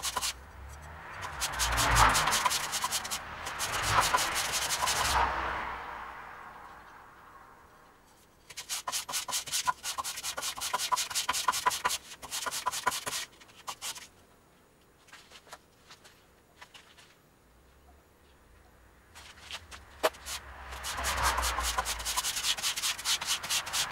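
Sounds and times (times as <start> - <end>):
hand sanding knife strokes: 0.0 - 0.4, 1.2 - 5.3, 8.5 - 14.1, 19.2 - 23.9.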